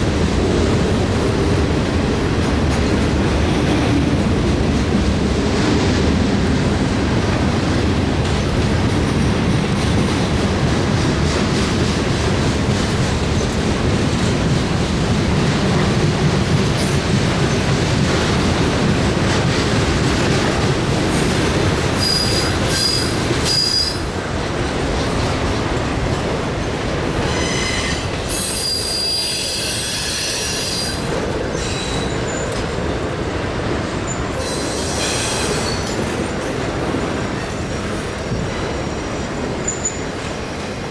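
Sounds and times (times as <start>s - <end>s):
train cars rumbling past: 0.0s - 40.9s
wheel squeals: 22.0s - 24.1s, 27.2s - 32.5s.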